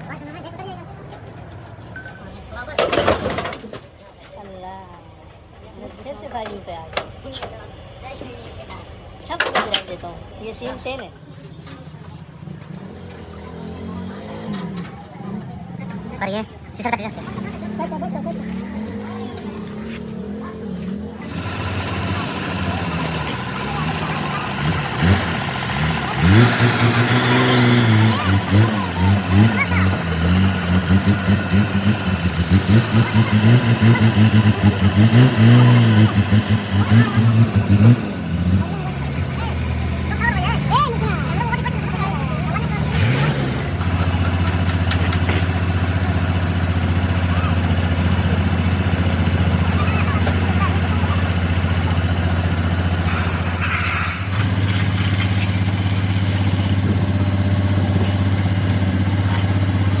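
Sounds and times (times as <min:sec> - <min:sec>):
engine idling: 0:00.0 - 0:14.1, 0:14.8 - 1:00.0
short hiss: 0:53.1 - 0:54.4.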